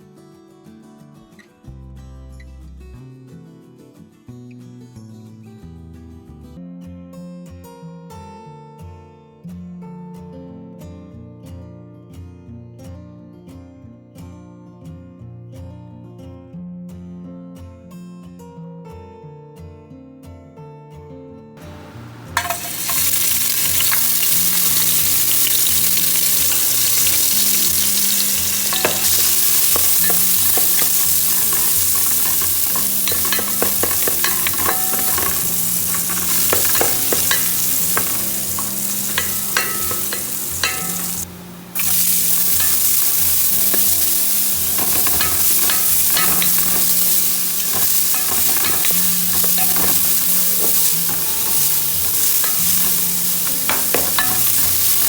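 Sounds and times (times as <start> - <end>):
chicken frying in hot oil: 21.7 - 55.0
spoon scraping a pot: 22.4 - 55.0.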